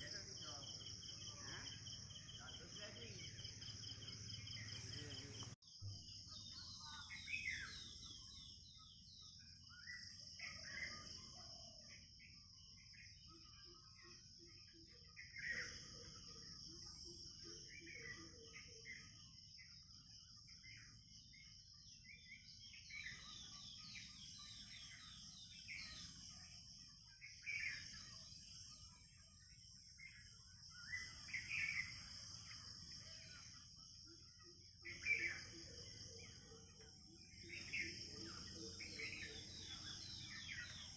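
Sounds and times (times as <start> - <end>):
birds chirping and calling: 0.0 - 40.9.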